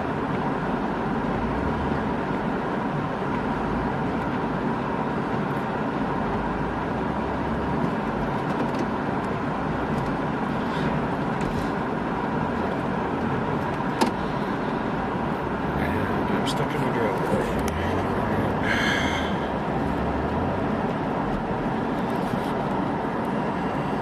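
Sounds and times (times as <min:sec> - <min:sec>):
car engine from inside cabin: 0:00.0 - 0:24.0.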